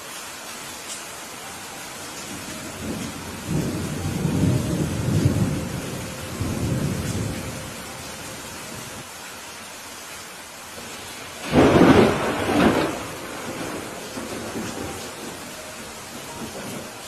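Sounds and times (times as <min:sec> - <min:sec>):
steady rain: 0:00.0 - 0:17.0
thunder rumble: 0:02.2 - 0:09.0, 0:11.4 - 0:17.0.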